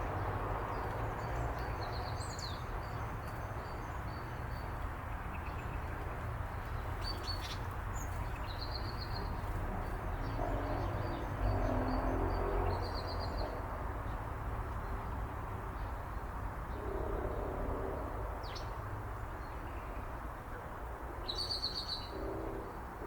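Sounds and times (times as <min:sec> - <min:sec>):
songbirds chirping: 0:00.2 - 0:23.0.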